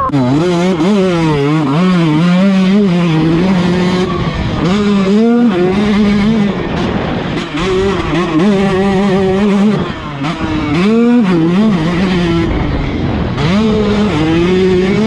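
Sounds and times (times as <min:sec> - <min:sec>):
two-stroke motorcycle engine revving: 0:00.0 - 0:15.0.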